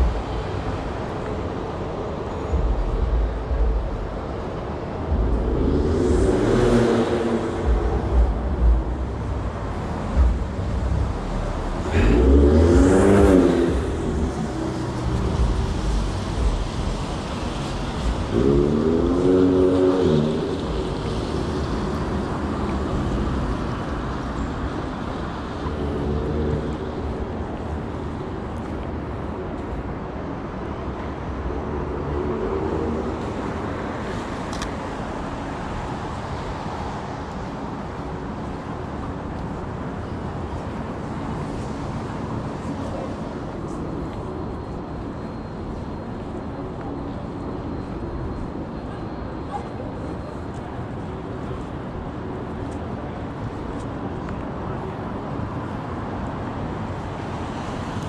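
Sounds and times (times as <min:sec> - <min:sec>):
car passing: 0:00.0 - 0:29.4
hum of traffic: 0:00.0 - 0:58.0.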